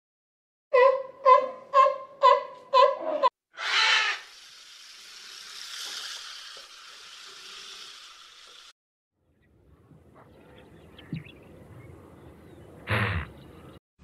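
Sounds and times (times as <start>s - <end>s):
running water hiss: 3.8s - 8.7s.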